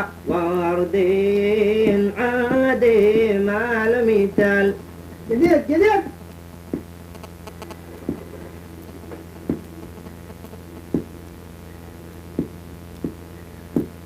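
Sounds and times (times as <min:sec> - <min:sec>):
person singing: 0:00.0 - 0:04.8
steady low hum: 0:00.0 - 0:14.0.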